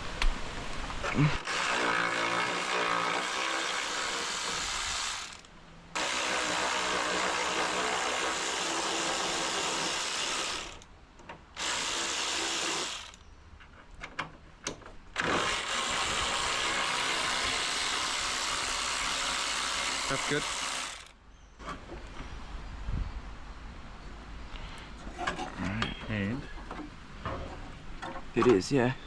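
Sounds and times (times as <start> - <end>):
power tool undoing bolts: 14.1 - 21.1.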